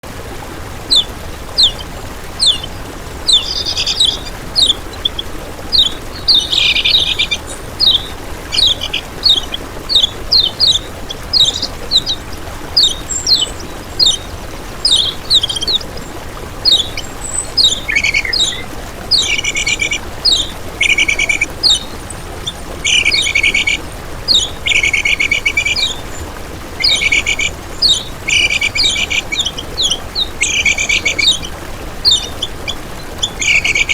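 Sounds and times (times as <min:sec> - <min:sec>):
bird buzzy rattling trills: 0:00.1 - 0:33.9
bird whistling down-slurred notes: 0:00.9 - 0:16.0, 0:16.6 - 0:26.0.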